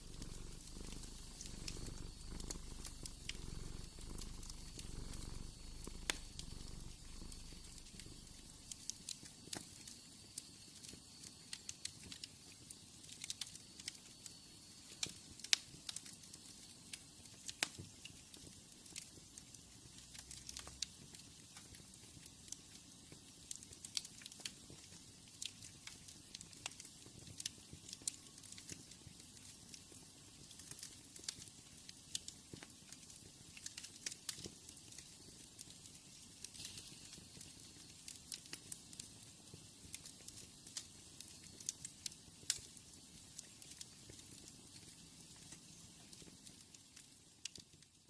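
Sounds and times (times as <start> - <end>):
cat purring: 0.0 - 8.9
wood fire crackling: 0.0 - 48.0.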